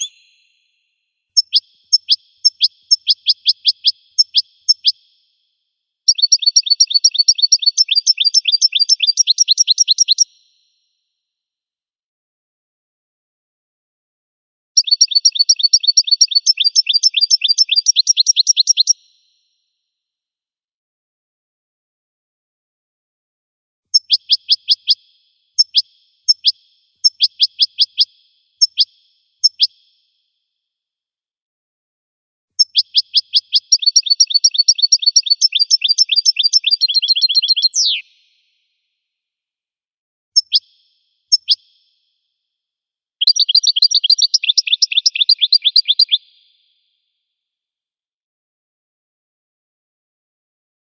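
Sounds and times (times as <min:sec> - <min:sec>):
goldfinch trilling song: 0:00.0 - 0:05.1, 0:06.1 - 0:10.5, 0:14.8 - 0:19.2, 0:23.9 - 0:29.9, 0:32.6 - 0:38.4, 0:40.4 - 0:42.0, 0:43.2 - 0:46.8.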